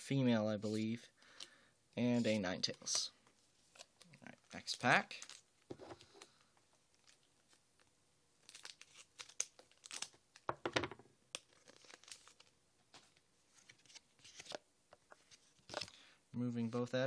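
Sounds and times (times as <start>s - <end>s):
foil wrapper crinkling and tearing: 6.9s - 10.4s, 11.4s - 12.5s.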